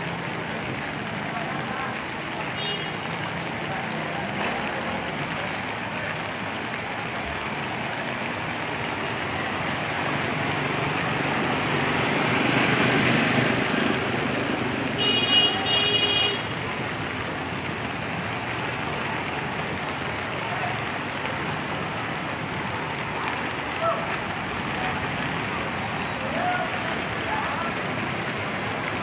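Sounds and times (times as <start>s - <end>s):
road traffic noise: 0.0s - 29.0s
vehicle passing: 9.0s - 15.0s
vehicle horn honking: 15.0s - 16.5s.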